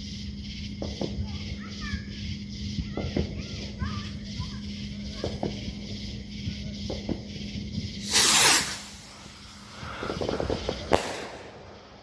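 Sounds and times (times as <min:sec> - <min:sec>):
firework hiss: 0:06.9 - 0:12.0
faint crackling: 0:07.9 - 0:12.0
sharp firework pop: 0:08.0 - 0:12.0.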